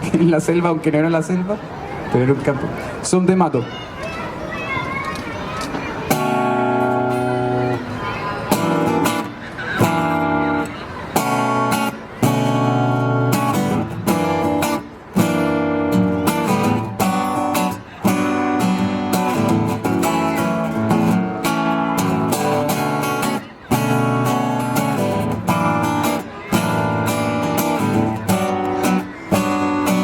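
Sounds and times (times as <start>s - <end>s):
acoustic guitar strumming chords: 6.0s - 30.0s.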